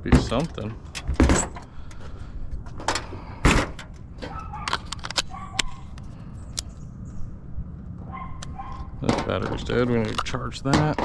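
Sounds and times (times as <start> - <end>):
tools and parts clicking and knocking: 0.2 - 6.0, 8.4 - 11.0.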